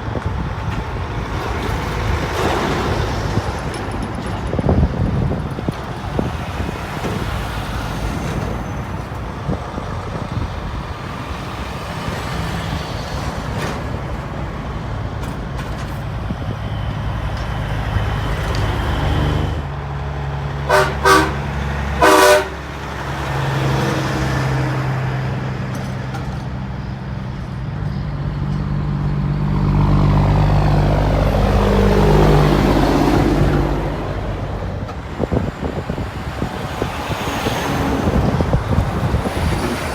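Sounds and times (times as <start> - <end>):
trucks driving past: 0.0 - 39.9
truck air horn blasts: 20.7 - 22.8.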